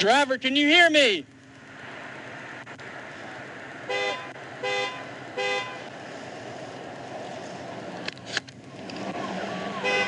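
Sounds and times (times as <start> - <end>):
low engine hum: 1.2 - 10.0
vehicle horn beeps: 3.9 - 5.8, 9.8 - 10.0.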